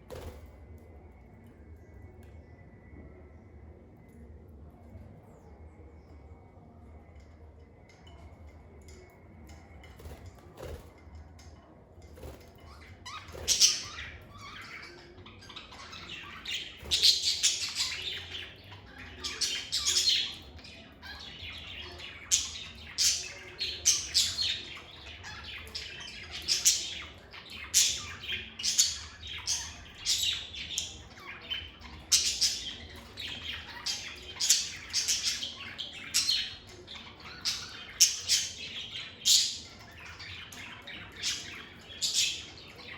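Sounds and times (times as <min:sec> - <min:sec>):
lovebirds chirping: 0:12.7 - 0:42.9.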